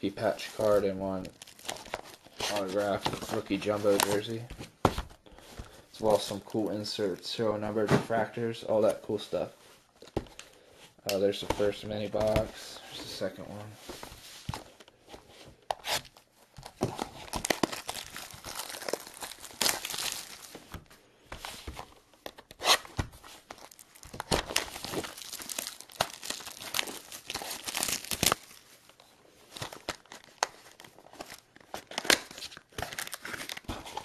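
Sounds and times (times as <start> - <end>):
packaging ripping and crinkling: 0.6 - 4.4, 15.8 - 20.7, 22.3 - 28.7, 29.5 - 34.0.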